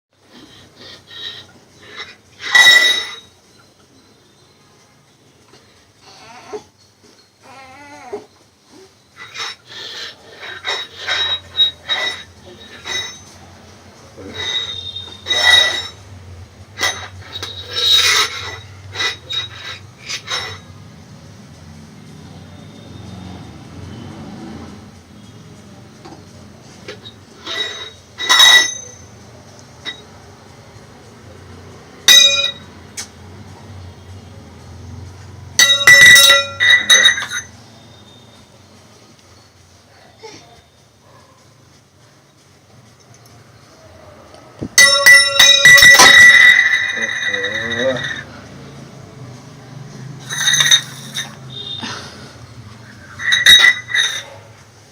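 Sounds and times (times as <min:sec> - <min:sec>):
hard objects clinking together: 0:00.3 - 0:03.3, 0:09.2 - 0:13.5, 0:14.2 - 0:20.7, 0:26.8 - 0:30.2, 0:32.1 - 0:33.1, 0:35.5 - 0:37.6, 0:44.6 - 0:48.6, 0:50.2 - 0:51.9, 0:52.8 - 0:54.5
bell-like ringing clinks: 0:35.6 - 0:38.3, 0:44.8 - 0:48.4.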